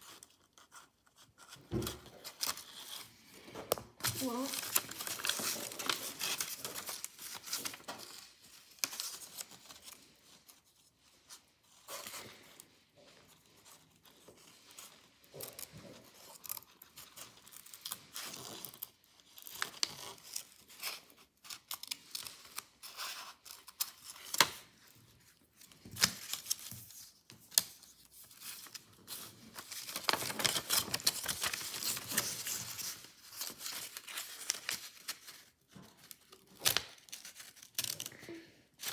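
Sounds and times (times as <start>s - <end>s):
paper rustling: 0.0s - 38.9s
scissors snipping paper: 4.0s - 8.2s.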